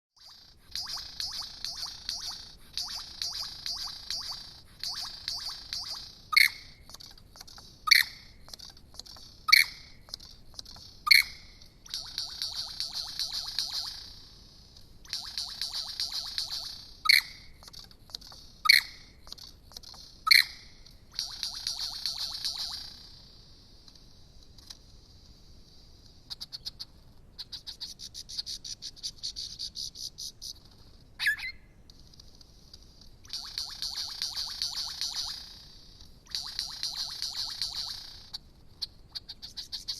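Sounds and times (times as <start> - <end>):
lyrebird song: 0.2 - 23.5, 25.6 - 39.9
quick rising bird chirps: 31.2 - 31.6.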